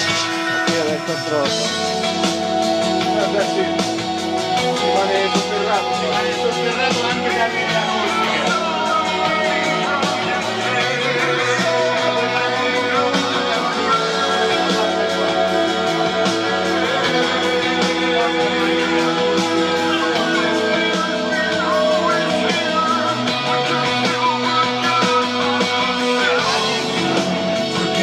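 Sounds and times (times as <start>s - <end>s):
rock music with electric guitars: 0.0s - 28.0s.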